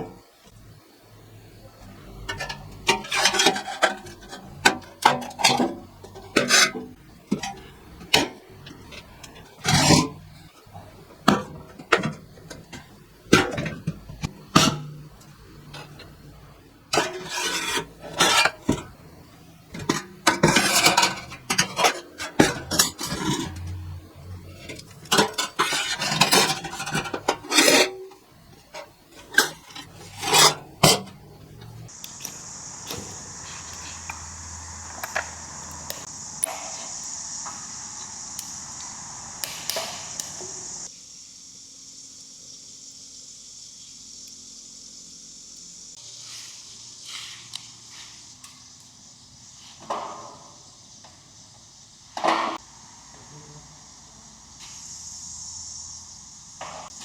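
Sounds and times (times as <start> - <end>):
scraping on metal: 1.8 - 16.2, 16.9 - 31.9.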